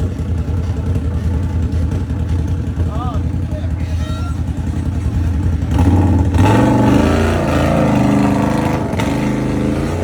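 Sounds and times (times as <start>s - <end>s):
atv engine revving: 0.0s - 10.0s.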